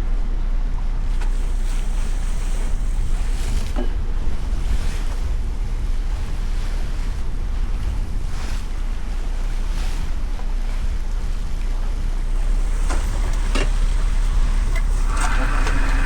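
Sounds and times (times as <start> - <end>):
wind buffeting microphone: 1.0 - 16.0
waves washing against boat: 1.1 - 16.0.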